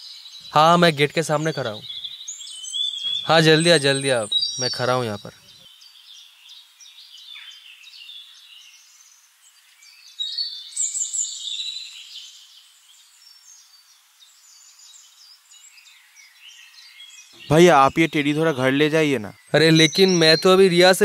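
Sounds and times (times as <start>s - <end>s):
birds chirping and twittering: 0.0s - 21.0s
faint outdoor background noise: 0.0s - 21.0s.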